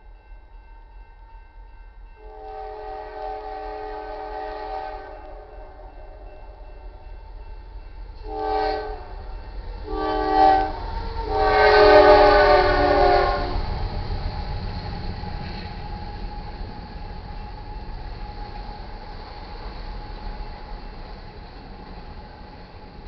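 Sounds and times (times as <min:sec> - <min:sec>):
freight train rumbling: 0:00.0 - 0:23.0
locomotive air horn blasts: 0:02.2 - 0:06.2, 0:08.2 - 0:09.1, 0:09.8 - 0:13.6.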